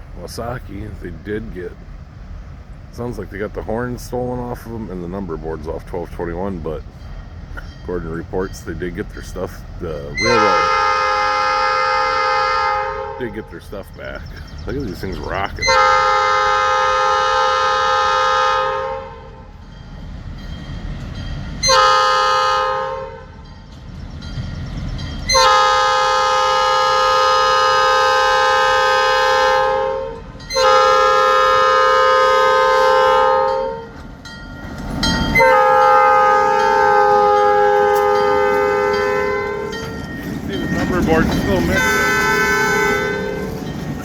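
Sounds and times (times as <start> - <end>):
passing train rumble: 0.0 - 44.0
locomotive air horn blasts: 10.2 - 13.4, 15.6 - 19.5, 21.6 - 23.4, 25.3 - 34.0, 35.4 - 39.9, 40.8 - 43.6.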